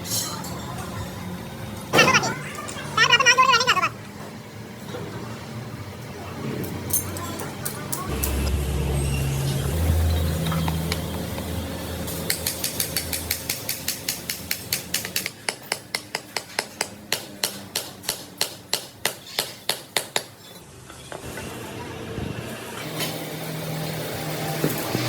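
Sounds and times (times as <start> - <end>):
hammer tapping on metal: 12.3 - 20.3.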